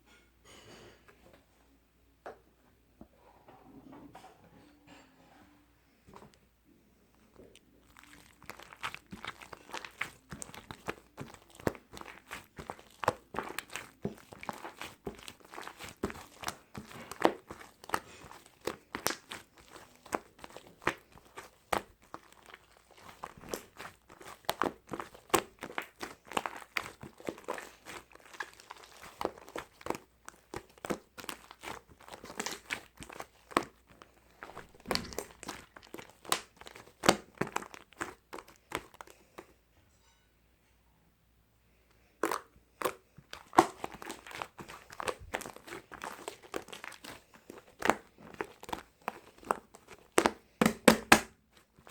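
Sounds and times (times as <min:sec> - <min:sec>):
crinkling and crackling clicks: 0:07.1 - 0:39.5, 0:41.9 - 0:51.9.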